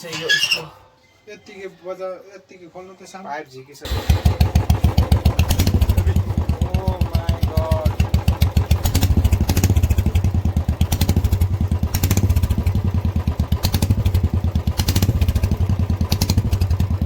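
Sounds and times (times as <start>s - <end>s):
motorcycle engine idling: 3.9s - 17.0s
sharp clattering ticks: 4.1s - 17.0s.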